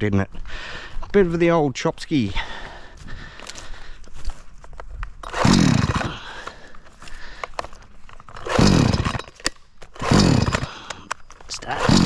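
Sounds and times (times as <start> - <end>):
chainsaw revving: 5.2 - 6.7, 8.3 - 12.0.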